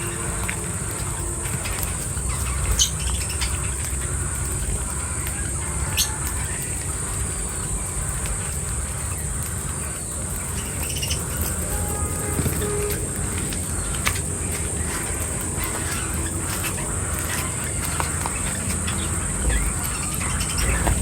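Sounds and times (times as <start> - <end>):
bird chirps: 0.0 - 21.0
insects droning: 0.0 - 21.0.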